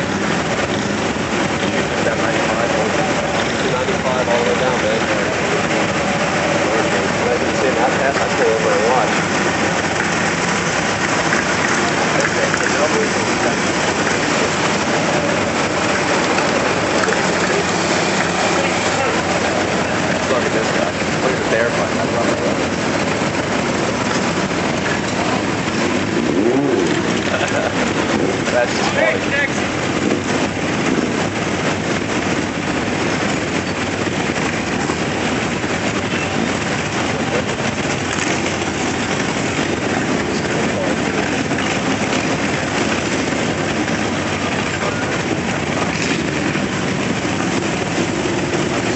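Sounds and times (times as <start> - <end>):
motorcycles riding past: 24.0 - 29.3.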